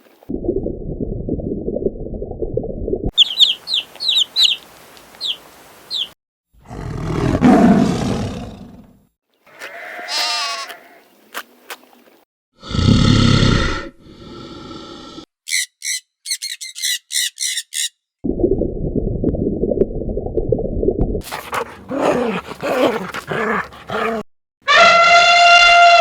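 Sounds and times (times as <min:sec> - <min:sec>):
wavering pitched animal call: 0:15.5 - 0:17.9
low animal rumbling: 0:21.2 - 0:24.2
harsh drawn-out animal call: 0:21.2 - 0:26.0.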